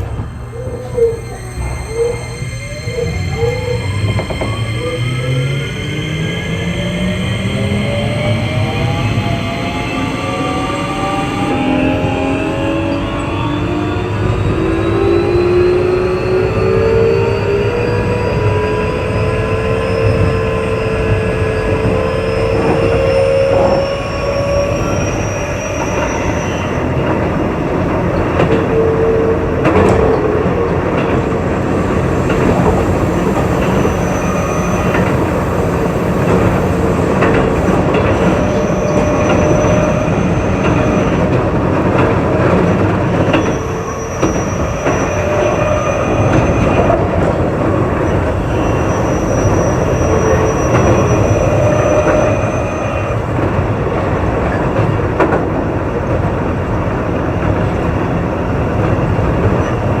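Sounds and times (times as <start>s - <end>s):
train wheels rumbling on rail: 0.0s - 60.0s
train whining tones: 0.0s - 60.0s
clickety-clack of rail joints: 21.1s - 60.0s.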